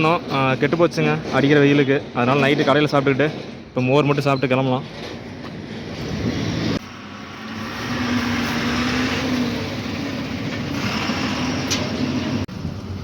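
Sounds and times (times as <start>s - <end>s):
lorry engine and road noise: 5.2s - 13.0s.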